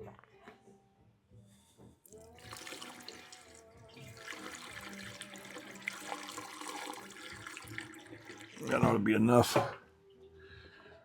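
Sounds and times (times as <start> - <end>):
gasoline pouring into fuel tank: 2.1 - 9.1.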